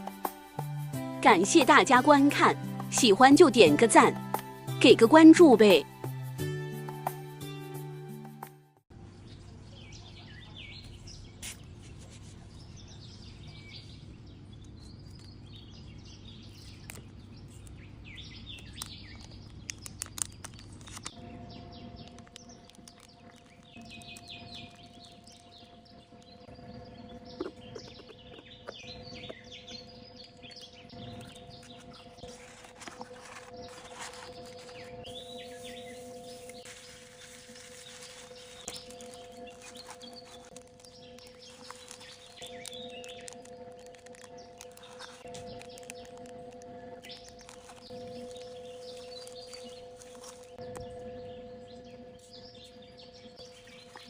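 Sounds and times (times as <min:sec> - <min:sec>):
small birds chirping: 0:09.0 - 0:54.0.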